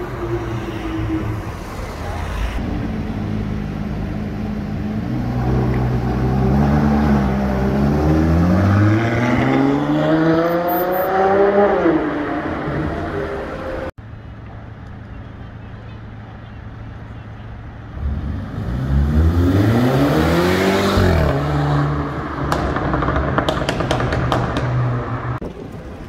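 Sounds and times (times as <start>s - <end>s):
car engine accelerating: 2.0s - 14.0s, 17.6s - 25.4s.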